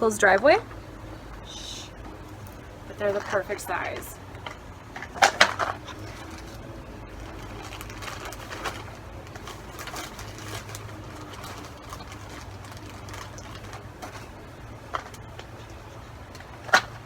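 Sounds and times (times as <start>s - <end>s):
small rocks clattering in bottle: 7.2s - 15.6s.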